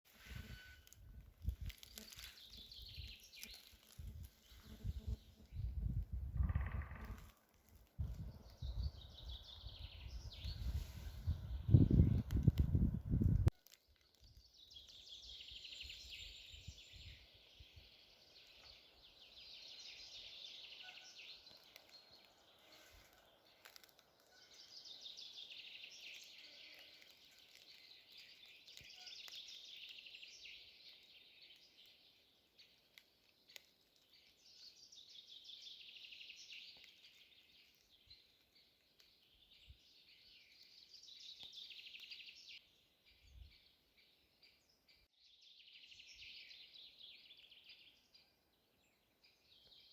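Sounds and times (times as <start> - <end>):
songbird trilling: 6.3 - 7.2.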